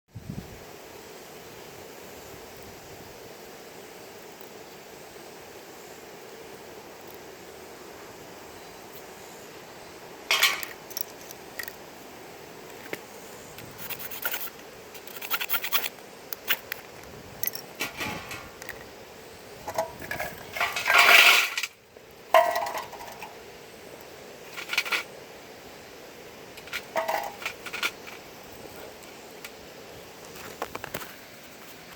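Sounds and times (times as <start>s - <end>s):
hard objects clinking and scraping: 19.7s - 21.7s, 26.6s - 28.2s.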